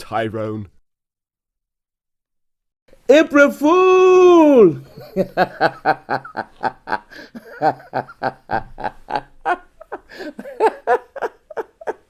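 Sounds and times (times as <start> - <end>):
man laughing: 4.3 - 12.0.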